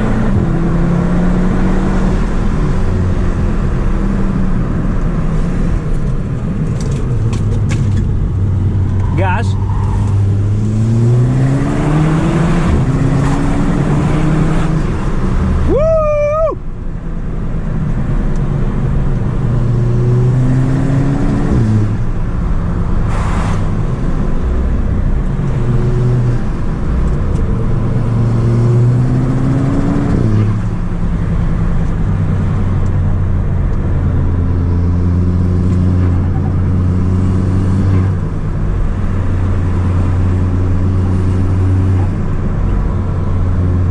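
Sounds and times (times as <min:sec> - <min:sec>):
turbocharged car engine revving: 0:07.8 - 0:15.6
high-pitched squeal: 0:08.7 - 0:10.7.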